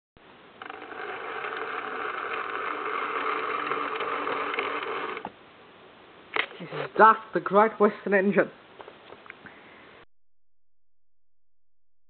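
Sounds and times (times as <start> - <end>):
model train motor whirring: 0.6 - 5.3.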